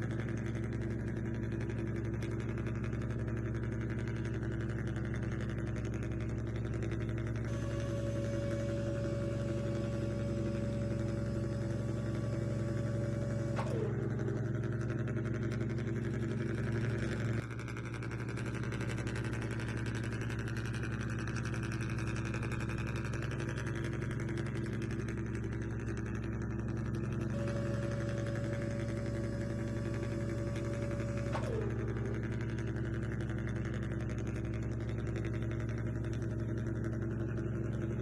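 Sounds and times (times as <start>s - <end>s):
motor whine spinning down: 6.8s - 17.5s, 18.3s - 38.0s
small electric motors humming: 7.5s - 15.0s, 27.3s - 33.2s.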